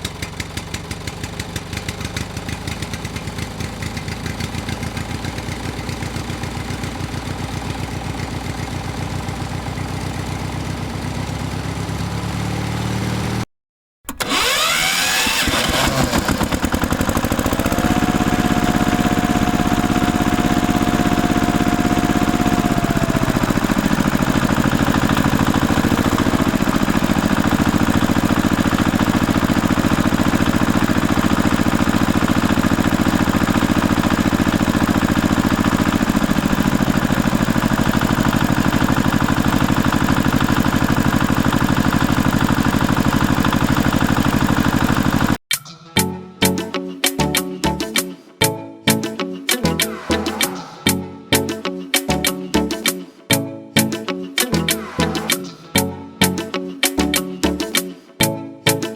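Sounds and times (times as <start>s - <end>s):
tractor engine chugging: 0.0s - 12.4s, 14.1s - 45.4s.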